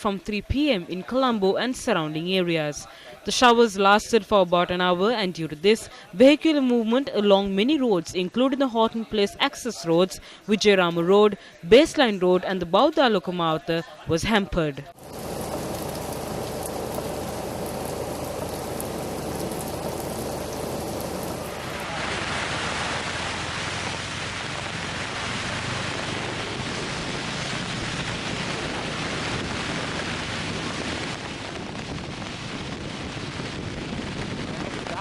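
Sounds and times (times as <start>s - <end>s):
low steady hum: 15.0s - 22.0s
heavy rain hissing: 15.0s - 35.0s.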